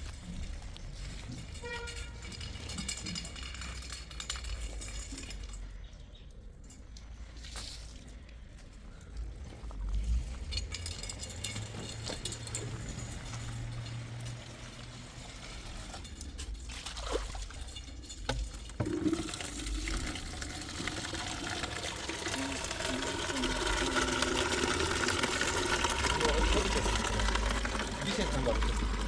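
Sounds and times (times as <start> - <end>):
water running into a container: 16.6 - 29.0.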